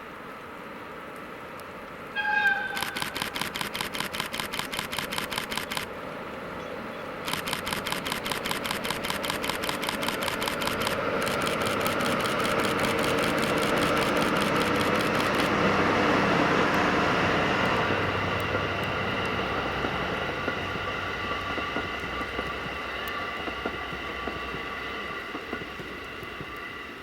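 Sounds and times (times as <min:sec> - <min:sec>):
approaching train: 0:00.0 - 0:27.0
camera shutter clicking: 0:02.7 - 0:05.9, 0:07.2 - 0:15.6.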